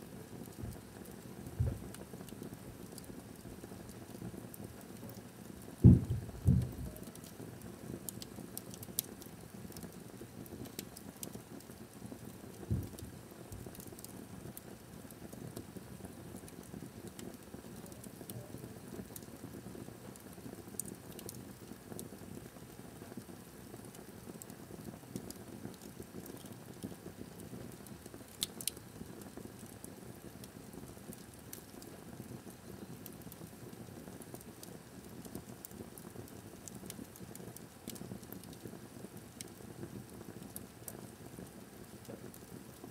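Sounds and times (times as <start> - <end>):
wood fire crackling: 0.0 - 42.9
dull thump: 5.8 - 6.7.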